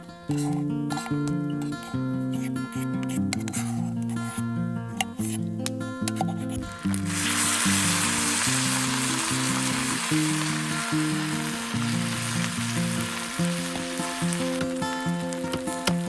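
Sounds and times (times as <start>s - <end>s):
food sizzling in a pan: 6.6s - 16.0s.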